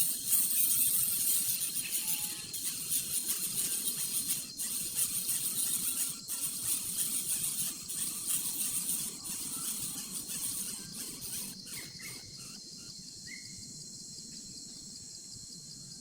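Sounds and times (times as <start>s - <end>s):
thin steady whine: 0.0s - 12.3s
high-pitched insect chorus: 0.0s - 16.0s.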